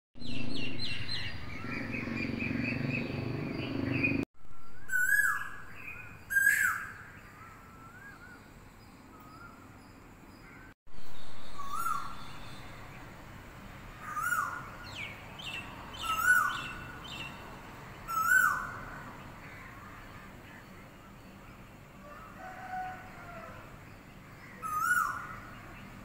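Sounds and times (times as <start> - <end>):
rising whistled bird calls: 0.2 - 8.5, 11.1 - 13.0, 14.0 - 17.3
birds chirping: 0.2 - 10.8, 11.4 - 26.0.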